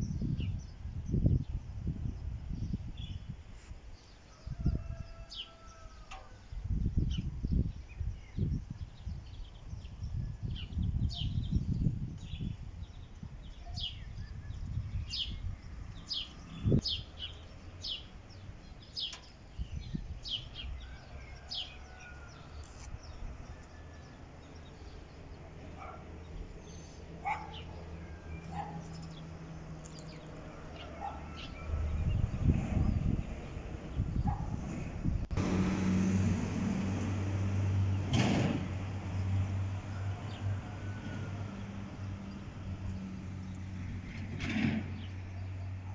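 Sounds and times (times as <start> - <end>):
birds chirping: 7.0 - 34.8.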